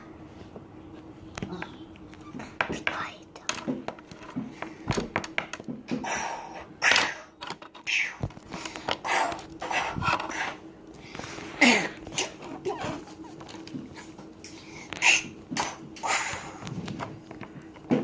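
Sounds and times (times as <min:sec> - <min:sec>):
person whispering: 0:02.5 - 0:03.7.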